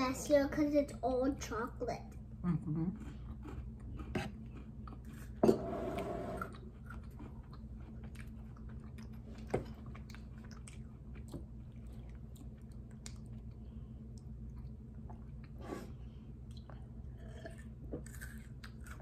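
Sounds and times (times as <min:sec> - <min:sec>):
chewing and mouth clicks: 0:06.4 - 0:15.6, 0:16.4 - 0:19.0.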